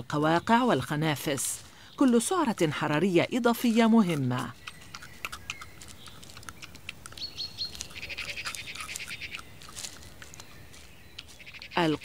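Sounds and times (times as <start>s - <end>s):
small birds chirping: 0.0s - 12.0s
bird trilling: 4.0s - 12.0s
hedgehog rustling in leaves: 7.5s - 12.0s.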